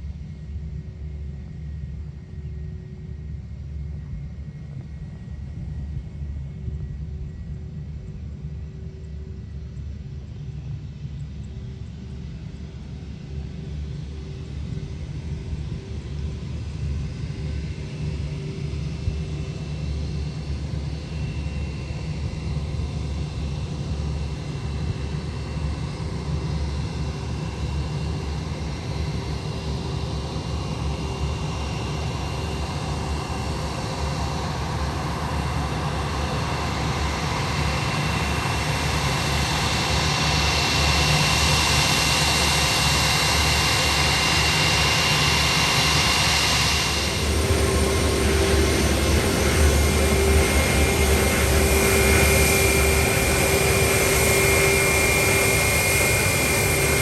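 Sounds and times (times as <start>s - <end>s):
jet engines rumbling and whining: 0.0s - 57.0s.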